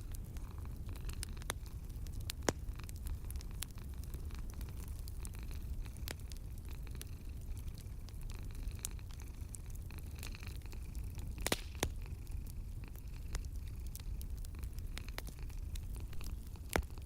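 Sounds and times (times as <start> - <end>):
low steady rumble: 0.0 - 17.0
wood fire crackling: 0.0 - 17.0.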